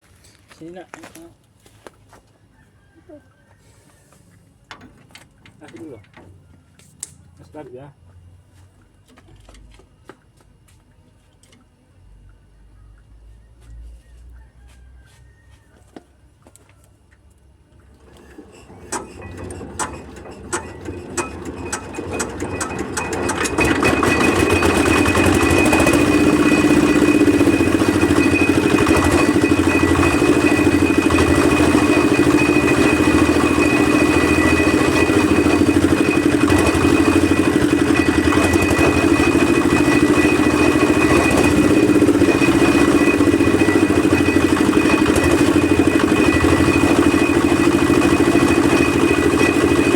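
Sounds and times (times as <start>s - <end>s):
mixer engine starting: 17.8s - 49.9s.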